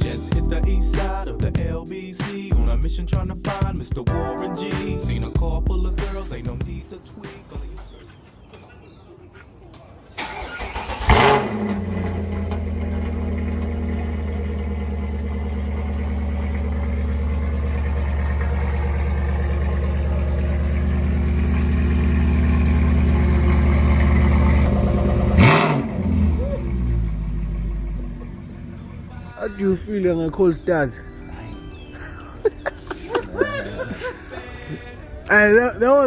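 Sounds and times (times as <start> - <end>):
starter motor cranking: 10.2 - 13.4
engine revving burst: 10.2 - 15.1, 18.3 - 29.1
car engine idling: 10.2 - 30.6.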